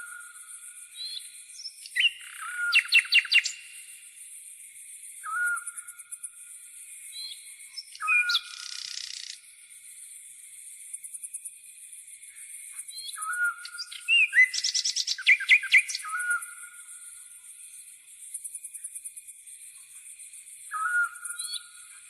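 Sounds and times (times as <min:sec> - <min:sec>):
loud bird chirps: 0:01.0 - 0:03.8, 0:07.1 - 0:09.4, 0:12.9 - 0:16.8, 0:20.7 - 0:22.0.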